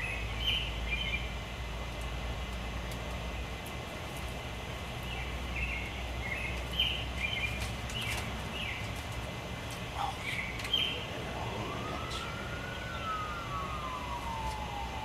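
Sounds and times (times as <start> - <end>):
birds chirping: 0.0 - 1.4, 4.9 - 15.0.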